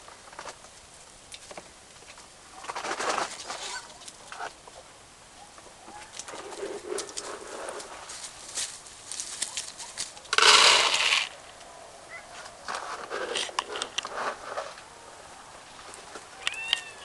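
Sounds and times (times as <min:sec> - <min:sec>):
rustling noise: 0:00.0 - 0:04.9, 0:05.6 - 0:11.6, 0:12.3 - 0:14.9
small clicks: 0:15.9 - 0:16.9.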